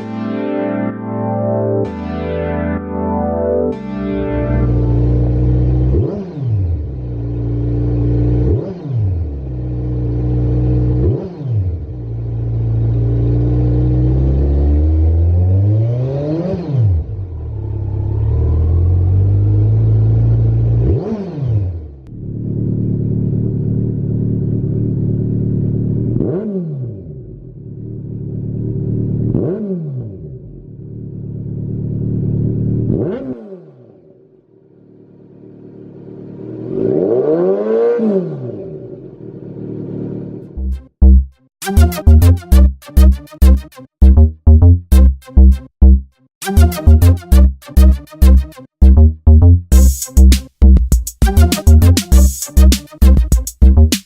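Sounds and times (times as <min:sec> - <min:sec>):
motorcycle engine revving: 0:04.7 - 0:41.2.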